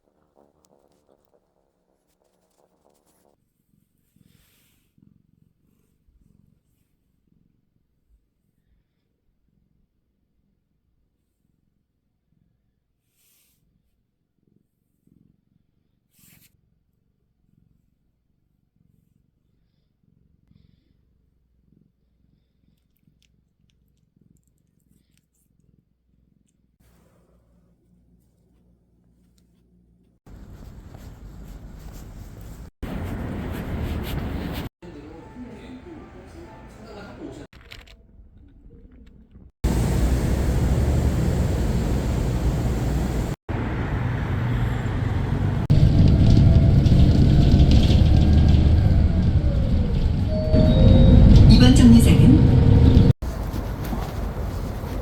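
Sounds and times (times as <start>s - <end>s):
cat purring: 0.0s - 34.7s, 39.6s - 43.4s
bus engine and road noise: 30.3s - 34.7s, 39.6s - 55.0s.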